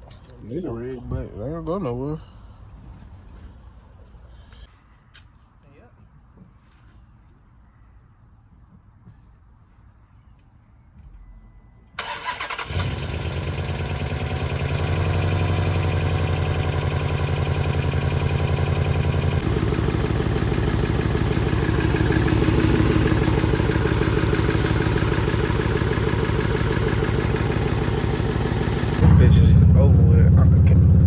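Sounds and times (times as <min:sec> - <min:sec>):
car starter cranking: 0:12.0 - 0:29.0
knocking engine running: 0:12.0 - 0:31.0.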